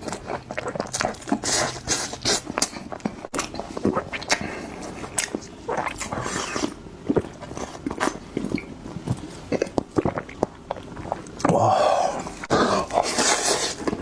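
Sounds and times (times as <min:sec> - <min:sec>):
person chewing and biting food: 0:00.0 - 0:14.0
slurp: 0:03.4 - 0:08.7, 0:09.4 - 0:14.0.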